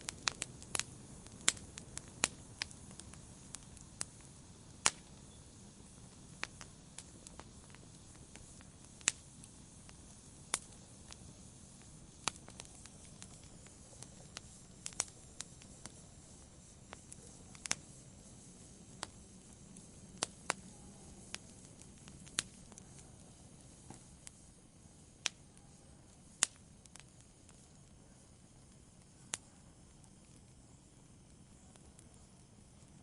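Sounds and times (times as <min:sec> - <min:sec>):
campfire crackling: 0:00.0 - 0:33.0.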